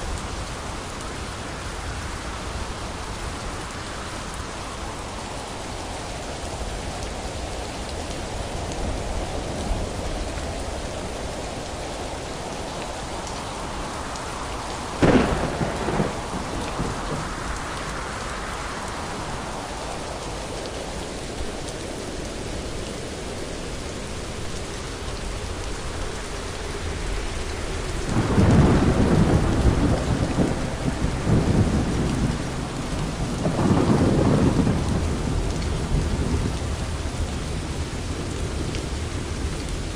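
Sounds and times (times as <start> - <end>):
steady rain: 0.0 - 39.9
sharp thunderclap: 15.0 - 17.3, 28.1 - 32.8, 33.4 - 35.3
rolling thunder: 15.0 - 17.7, 28.1 - 37.7.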